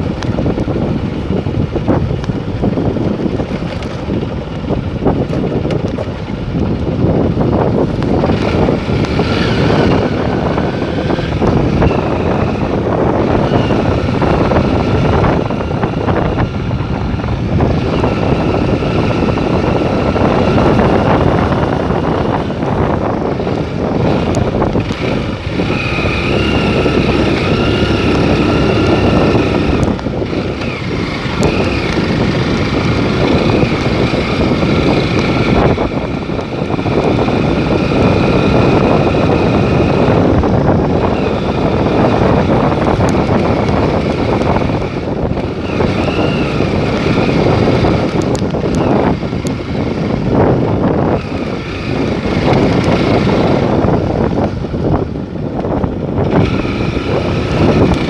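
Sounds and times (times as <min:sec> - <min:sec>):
vehicle engine running: 0:00.0 - 0:58.0
wind rushing over microphone: 0:00.0 - 0:58.0.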